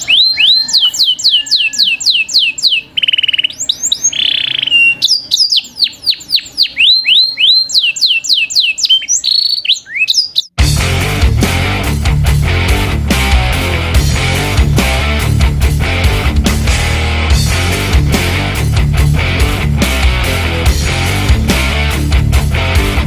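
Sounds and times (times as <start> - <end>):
rapid bird trill: 0.0 - 10.6
songbird whistling: 0.0 - 10.6.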